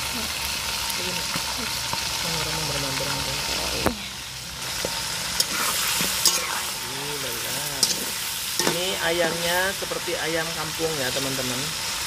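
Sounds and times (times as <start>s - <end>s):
chicken deep-frying in oil: 0.0s - 12.0s
utensils clicking against wok: 7.7s - 9.5s.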